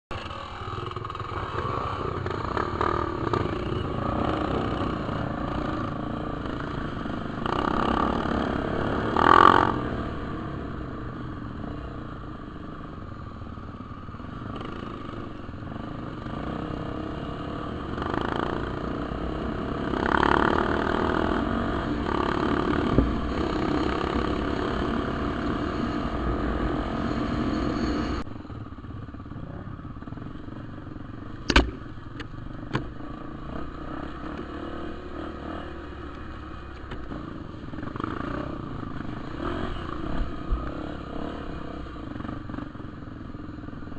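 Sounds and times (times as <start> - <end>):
dirt bike engine revving: 0.1 - 10.8, 15.8 - 28.2.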